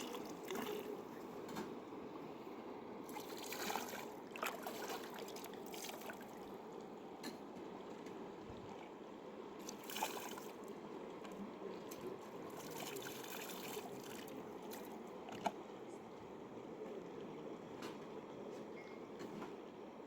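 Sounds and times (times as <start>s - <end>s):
river water flowing: 0.0s - 1.1s, 2.1s - 7.2s, 9.2s - 11.1s
water splashing: 0.0s - 1.1s, 3.0s - 6.6s, 9.6s - 10.7s, 11.9s - 15.6s.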